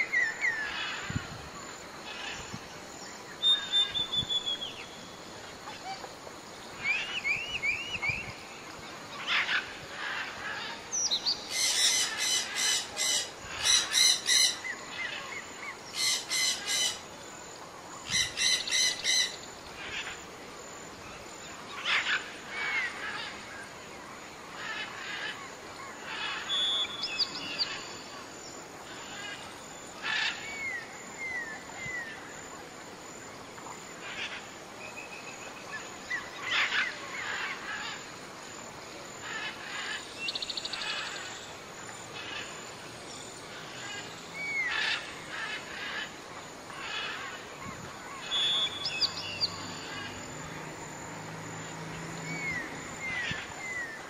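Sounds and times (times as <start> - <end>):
whistled bird glides: 3.3 - 6.1, 6.8 - 17.0.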